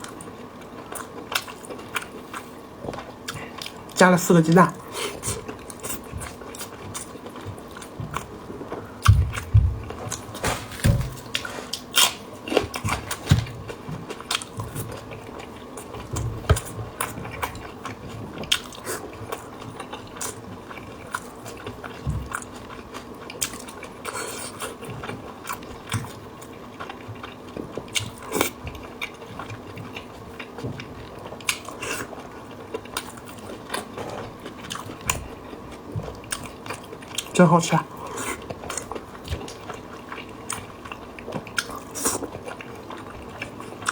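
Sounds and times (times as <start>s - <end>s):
biting and wet chewing: 0.0s - 43.9s.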